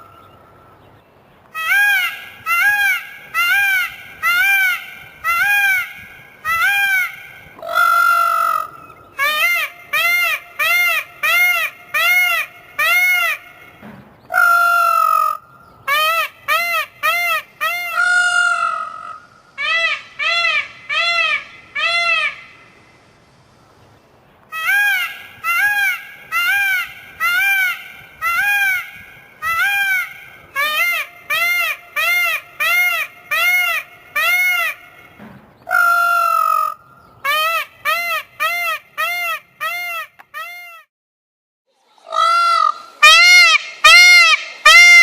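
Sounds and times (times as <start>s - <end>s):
large bird honking calls: 42.1s - 45.0s.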